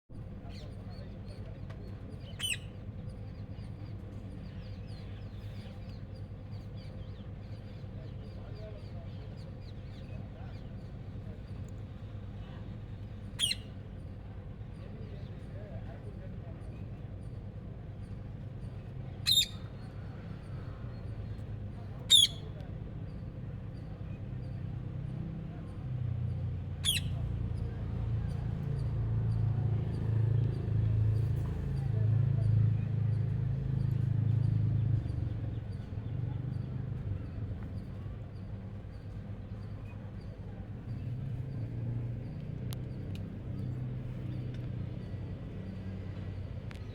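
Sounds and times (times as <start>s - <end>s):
faint bird chirps: 2.1s - 10.9s, 13.3s - 14.2s, 18.6s - 21.4s, 22.1s - 24.7s, 26.8s - 29.4s
parrot shrill call: 2.4s - 2.6s, 19.3s - 19.6s, 22.1s - 22.4s, 26.8s - 27.2s.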